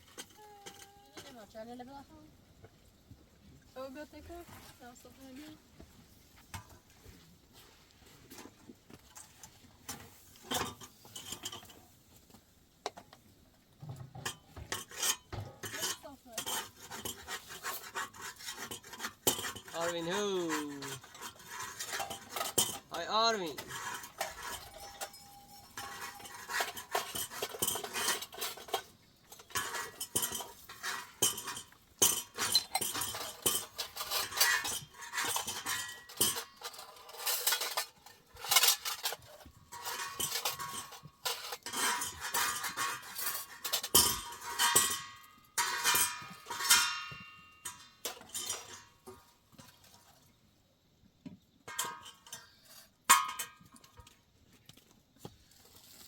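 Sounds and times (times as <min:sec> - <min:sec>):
metal dishes clinking and scraping: 0:00.0 - 0:01.4, 0:08.3 - 0:12.0, 0:13.8 - 0:50.1, 0:51.6 - 0:54.2.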